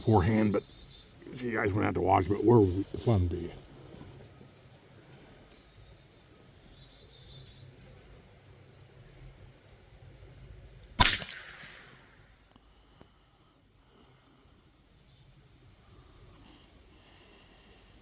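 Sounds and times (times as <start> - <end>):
insects chirring: 0.0 - 18.0
rifle shot: 11.0 - 12.2.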